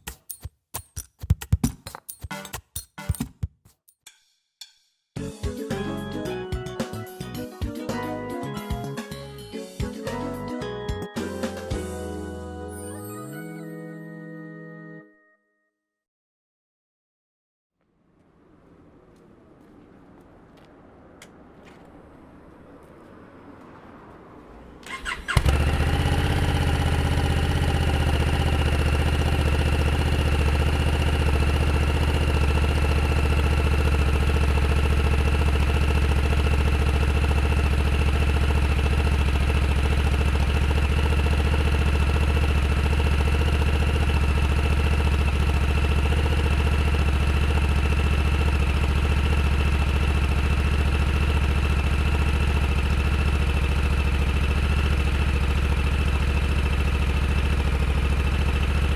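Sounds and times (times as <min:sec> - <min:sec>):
motorcycle engine starting and idling: 0:18.2 - 0:58.9.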